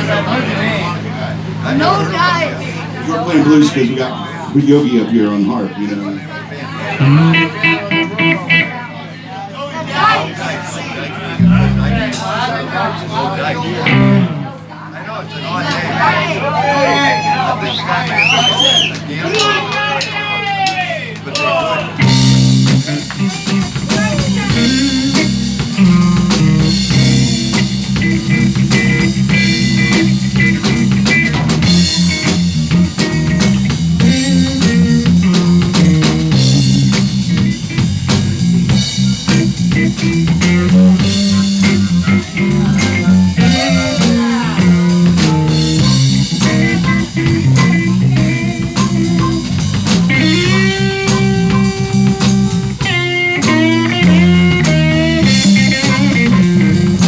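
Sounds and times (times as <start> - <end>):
bass line: 6.9 - 8.8, 11.4 - 12.4, 13.8 - 14.6, 22.0 - 57.0
electric guitar with bent notes: 6.9 - 8.9, 11.4 - 12.4, 13.8 - 14.7, 21.9 - 57.0
drum kit: 7.0 - 8.7, 11.4 - 12.5, 13.8 - 14.5, 21.4 - 57.0.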